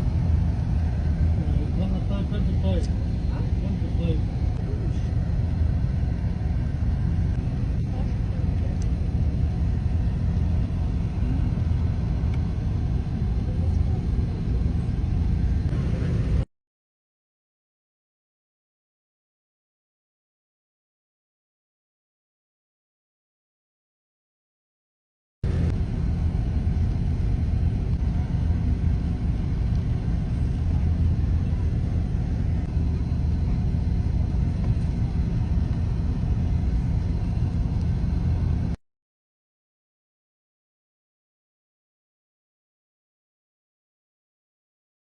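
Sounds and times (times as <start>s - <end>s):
loud low rumble: 0.0s - 16.5s, 25.4s - 38.8s
outdoor noise: 0.0s - 16.5s, 25.4s - 38.8s.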